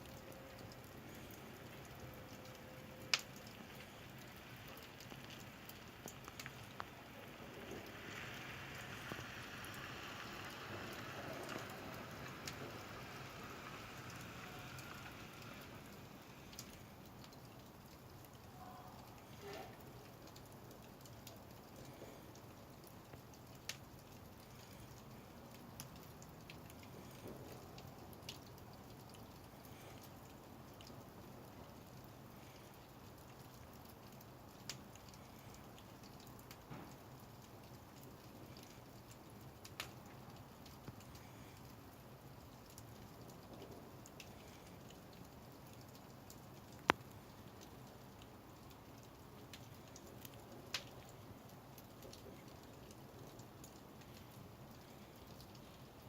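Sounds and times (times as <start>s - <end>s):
firewood crackling and popping: 0.0s - 56.0s
wood snapping in fire: 2.3s - 7.0s, 23.1s - 24.9s, 33.8s - 41.6s, 45.6s - 47.7s, 48.6s - 51.2s
hissing rush of fire: 3.0s - 17.0s.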